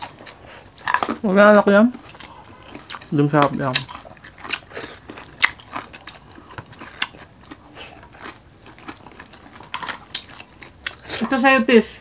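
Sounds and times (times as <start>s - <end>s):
person crunching crispy food: 1.9s - 11.2s.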